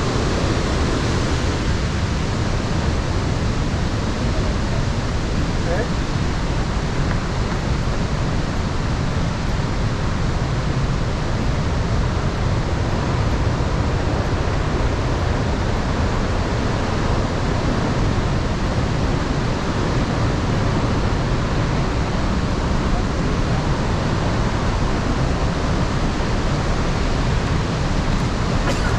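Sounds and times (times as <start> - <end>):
waterfall rushing: 0.0 - 28.9.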